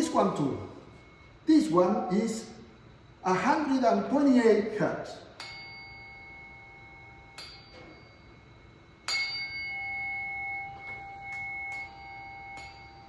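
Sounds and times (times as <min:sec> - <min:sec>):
tuning fork struck and ringing: 0:00.0 - 0:01.8, 0:05.1 - 0:13.0.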